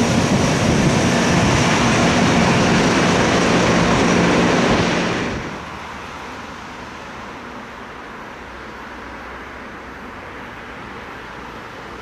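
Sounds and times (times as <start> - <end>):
freight train wheels rumbling: 0.0 - 6.4.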